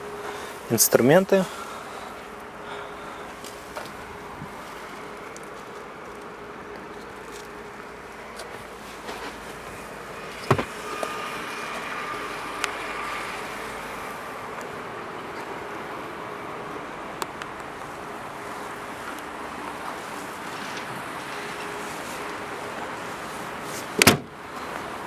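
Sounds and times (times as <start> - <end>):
steady background hum: 0.0 - 23.7
car trunk thump: 10.4 - 11.1, 24.0 - 24.3.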